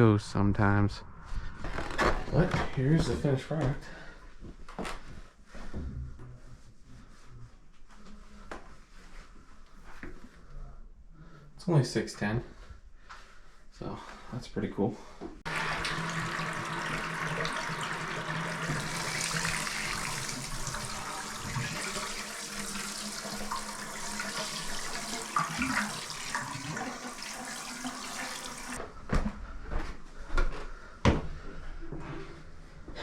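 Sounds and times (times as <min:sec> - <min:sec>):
tap water running: 0:15.5 - 0:28.8.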